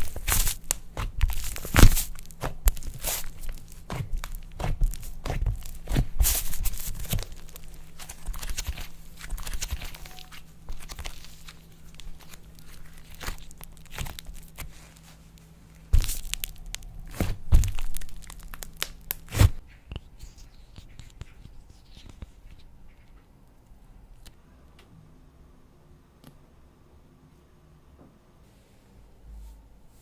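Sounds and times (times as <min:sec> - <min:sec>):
slime snapping: 0:00.2 - 0:08.8, 0:16.0 - 0:19.5.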